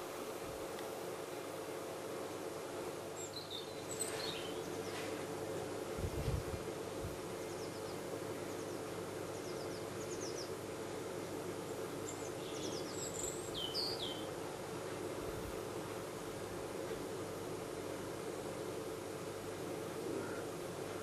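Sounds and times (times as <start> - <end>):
steady background noise: 0.0 - 21.0
small birds chirping: 2.3 - 17.1.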